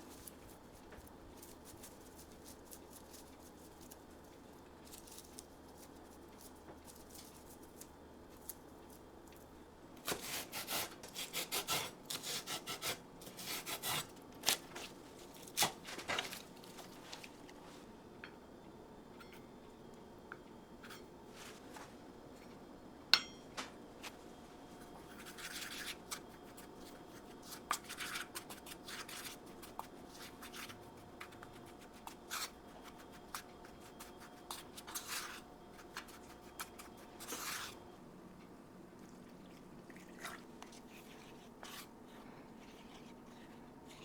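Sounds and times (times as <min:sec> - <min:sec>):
low steady hum: 0:13.0 - 0:44.0
kitchen utensils scraping and tapping: 0:27.5 - 0:37.8.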